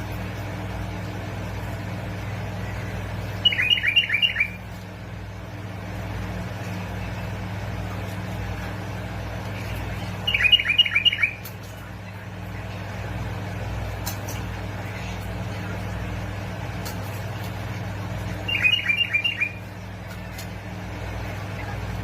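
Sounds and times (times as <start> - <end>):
steady low hum: 0.0 - 22.0
bird song phrases: 3.3 - 4.8, 9.5 - 12.7, 18.3 - 19.8.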